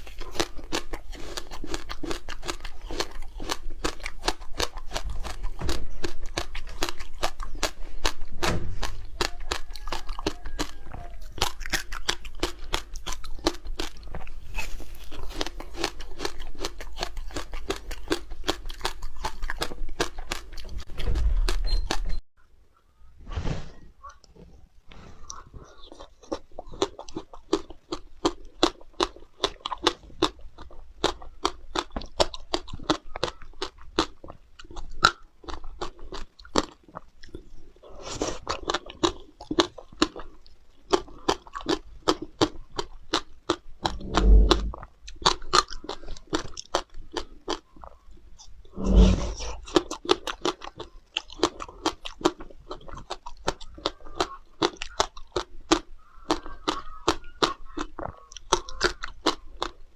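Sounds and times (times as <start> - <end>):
icy crunching and chewing: 0.0 - 22.2, 24.0 - 59.9
deep loud bites: 0.2 - 14.3, 43.8 - 46.0.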